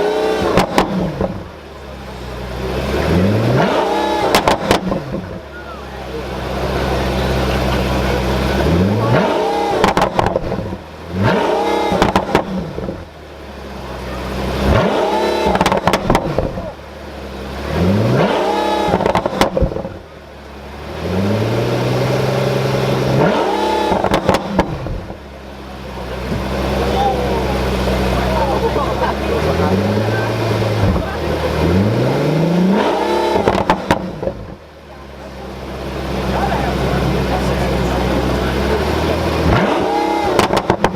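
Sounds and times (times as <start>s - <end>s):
car engine revving: 0.0s - 40.9s
exhaust pops and crackles: 0.4s - 1.7s, 4.2s - 5.5s, 9.0s - 13.2s, 14.7s - 16.8s, 18.3s - 20.6s, 23.3s - 25.4s, 33.3s - 34.7s, 36.2s - 40.9s.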